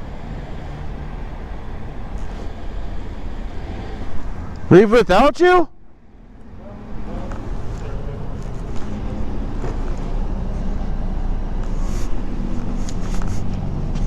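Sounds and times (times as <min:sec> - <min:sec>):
vehicle engine running: 0:00.0 - 0:05.2, 0:05.8 - 0:14.0
road noise: 0:00.0 - 0:14.0.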